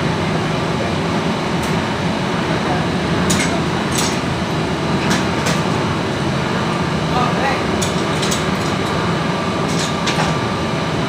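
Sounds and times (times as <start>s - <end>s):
loud machinery humming: 0.0s - 11.0s.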